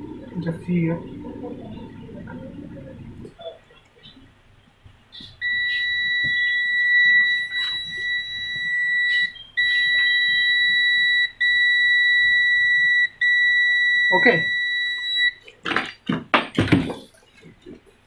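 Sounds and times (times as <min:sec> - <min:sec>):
high-pitched electronic beep: 0:05.4 - 0:15.4.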